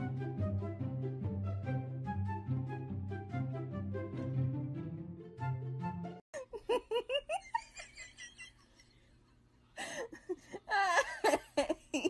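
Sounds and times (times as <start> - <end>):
person laughing: 6.4 - 9.0, 9.8 - 12.0.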